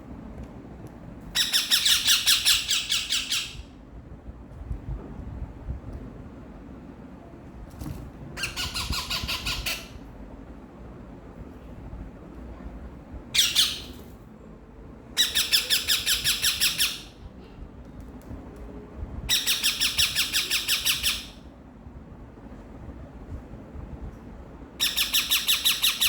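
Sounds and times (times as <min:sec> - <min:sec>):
parakeets squawking: 0:01.4 - 0:03.6, 0:08.4 - 0:10.0, 0:15.2 - 0:17.1.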